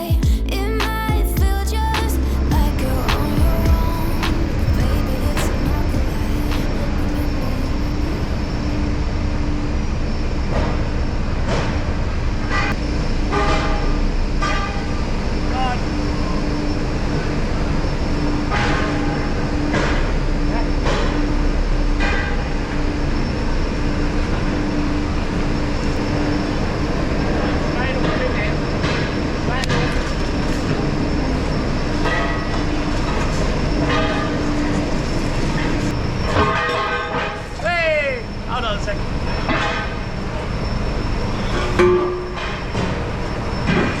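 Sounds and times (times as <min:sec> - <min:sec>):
steady tone: 0:00.0 - 0:11.4
heavy vehicle engine rumble: 0:00.0 - 0:44.0
road noise: 0:00.6 - 0:44.0.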